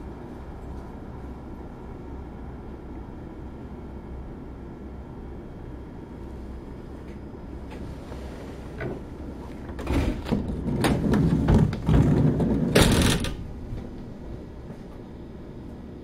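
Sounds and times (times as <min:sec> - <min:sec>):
electric train low hum: 0:00.0 - 0:16.0
clattering and knocking: 0:09.8 - 0:13.9.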